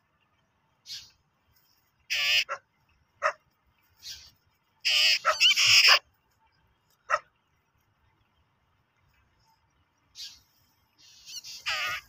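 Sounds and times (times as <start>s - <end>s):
harsh bird calls: 2.1s - 2.6s, 4.0s - 6.1s, 10.1s - 12.0s.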